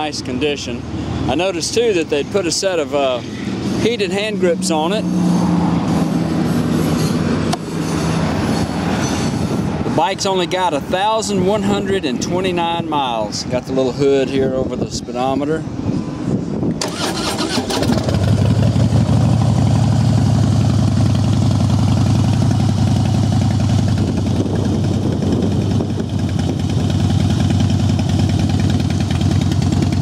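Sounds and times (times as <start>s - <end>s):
motorcycle engine starting and idling: 16.7s - 30.0s.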